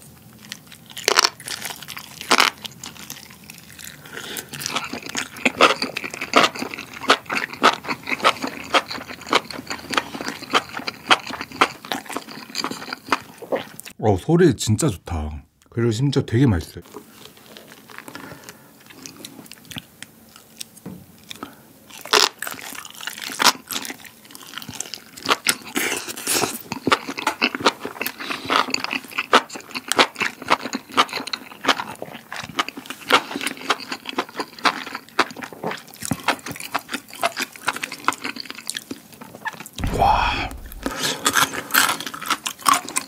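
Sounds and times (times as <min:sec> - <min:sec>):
crisp chewing: 0:00.2 - 0:13.9, 0:17.0 - 0:43.0
sharp bite: 0:39.8 - 0:41.3.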